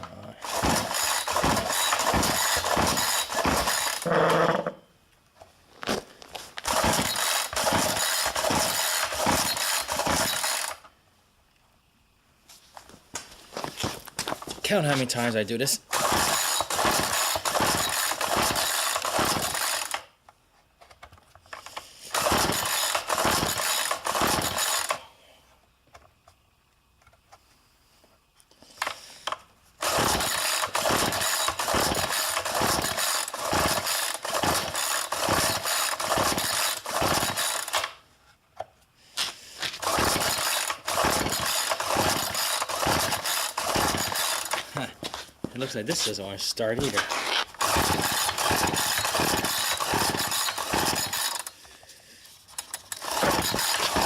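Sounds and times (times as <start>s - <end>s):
engine turning over: 0.4s - 4.7s, 6.6s - 10.8s, 15.9s - 20.1s, 21.6s - 25.0s, 28.8s - 38.0s, 39.8s - 44.8s, 46.9s - 51.6s, 52.6s - 54.0s
recoil starter rasping pulls: 0.4s - 4.8s, 6.6s - 10.9s, 15.9s - 20.1s, 21.0s - 25.0s, 28.8s - 38.0s, 39.7s - 44.7s, 46.8s - 51.6s, 52.5s - 54.0s.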